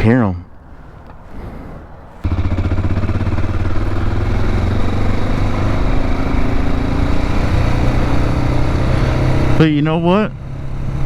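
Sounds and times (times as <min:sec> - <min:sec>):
motorcycle engine running: 0:02.2 - 0:11.0.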